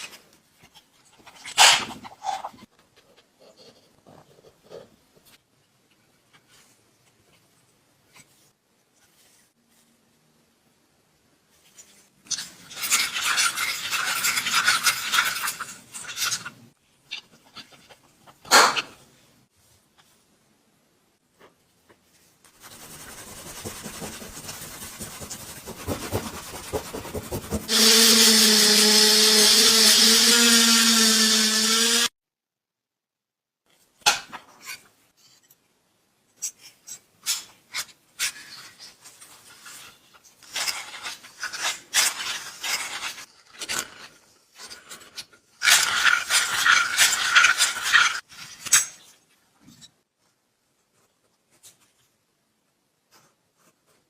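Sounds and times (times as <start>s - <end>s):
power tool running: 27.7s - 32.1s.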